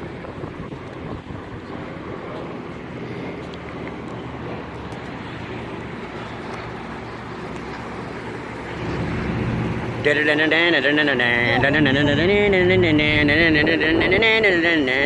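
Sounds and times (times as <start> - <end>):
wind on microphone: 0.0 - 6.7, 11.6 - 15.0
propeller aircraft drone: 0.0 - 15.0.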